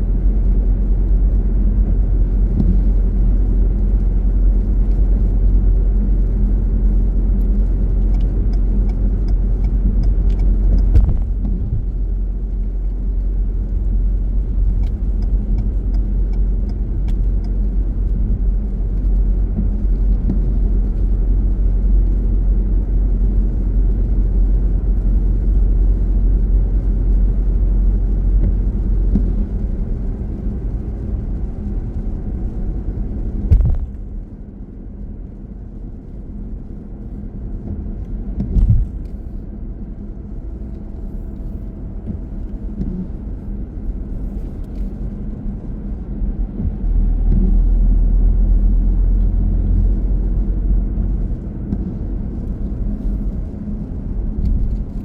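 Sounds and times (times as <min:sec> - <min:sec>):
car road and engine rumble: 0:00.0 - 0:55.0
thump: 0:10.9 - 0:11.8, 0:33.5 - 0:34.0.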